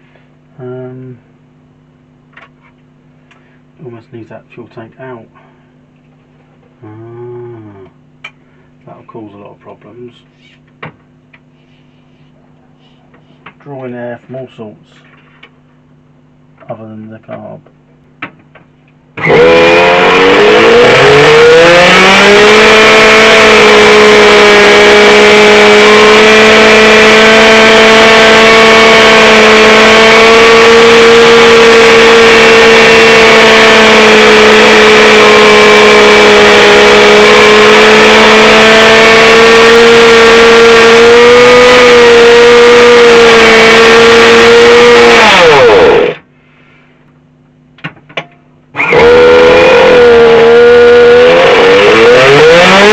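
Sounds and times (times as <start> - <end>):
model car engine buzzing: 19.2 - 46.2, 48.8 - 52.9.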